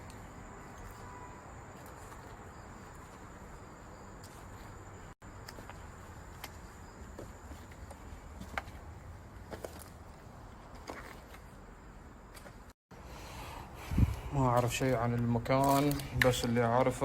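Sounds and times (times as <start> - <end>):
crickets trilling: 0.0 - 9.4.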